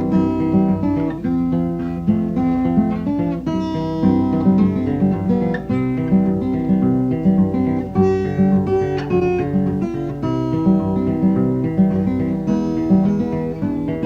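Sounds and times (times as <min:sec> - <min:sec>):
acoustic guitar folk-blues tune: 0:00.0 - 0:14.0.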